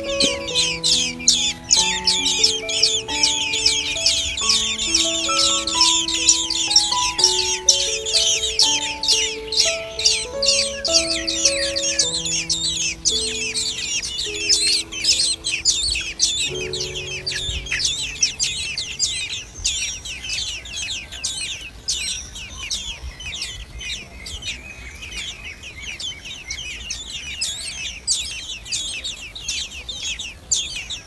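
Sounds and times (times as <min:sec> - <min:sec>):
nestling birds chirping: 0:00.0 - 0:31.0.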